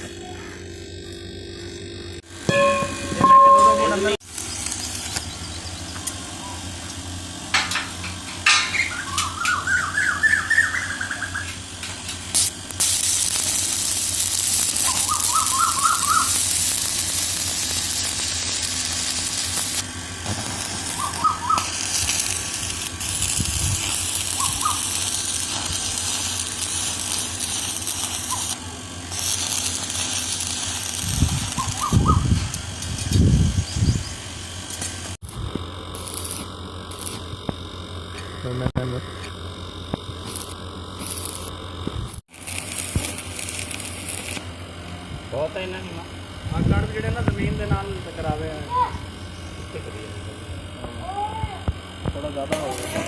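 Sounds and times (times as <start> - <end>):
arc welding hissing and crackling: 0.0 - 53.0
bird chirping: 8.8 - 11.5.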